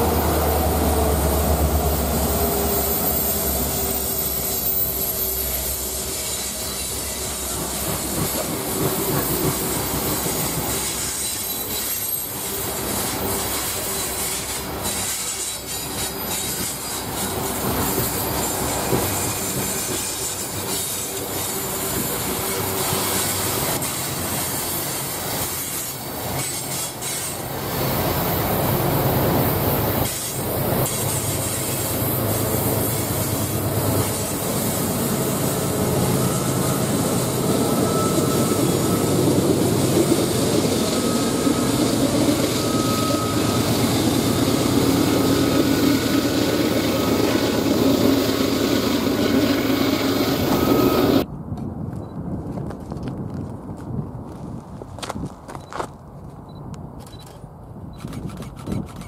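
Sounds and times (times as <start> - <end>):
diesel locomotives: 0.0 - 52.3
faint wheel squeal: 2.2 - 7.6, 36.0 - 39.4, 40.4 - 51.3
freight train wheels clattering: 4.6 - 51.2.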